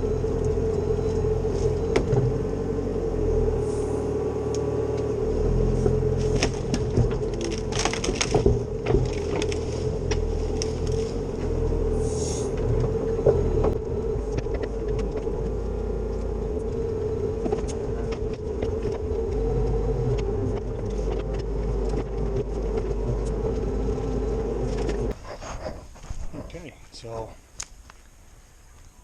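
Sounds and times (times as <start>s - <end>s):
excavator engine rumbling: 0.0s - 27.5s
sharp knocks and cracks of timber: 6.2s - 11.2s.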